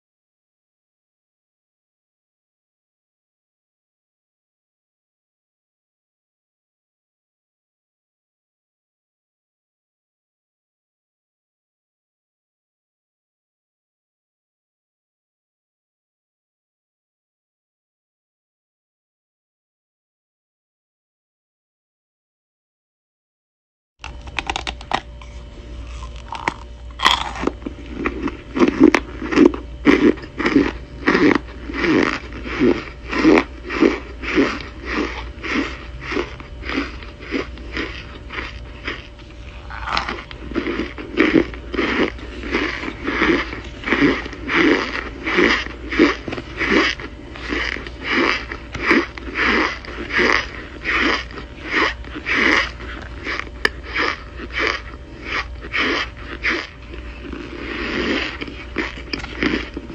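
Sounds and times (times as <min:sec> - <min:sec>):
crunchy chewing: 0:24.0 - 0:59.9.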